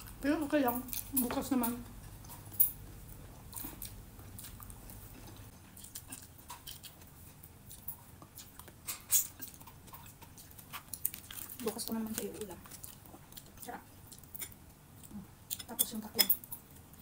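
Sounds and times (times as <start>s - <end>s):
person chewing food: 1.9s - 15.8s.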